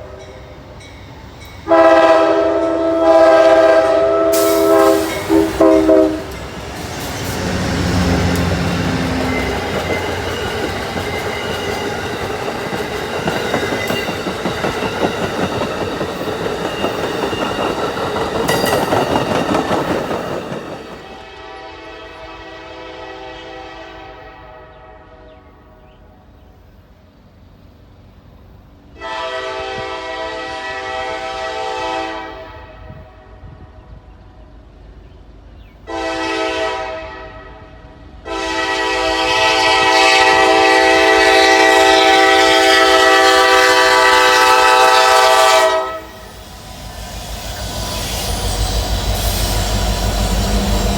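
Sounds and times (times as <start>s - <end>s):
train wheels rushing on rails: 0.0s - 23.6s, 37.7s - 50.9s
locomotive horn blast: 1.7s - 6.4s, 21.0s - 25.7s, 29.0s - 33.7s, 35.9s - 46.3s.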